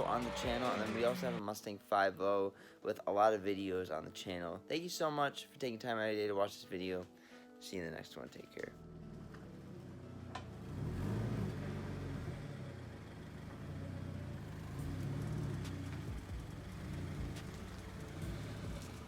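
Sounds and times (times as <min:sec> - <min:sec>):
car engine humming: 0:00.0 - 0:01.4, 0:08.8 - 0:19.0.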